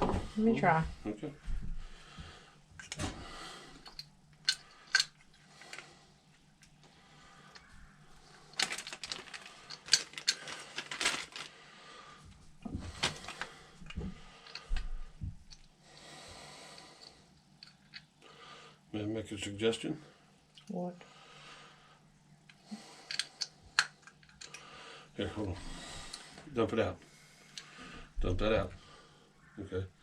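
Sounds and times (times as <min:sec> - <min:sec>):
small metal parts clicking: 0:03.8 - 0:05.8, 0:08.5 - 0:11.5, 0:14.4 - 0:14.9, 0:17.0 - 0:18.1, 0:22.5 - 0:24.6.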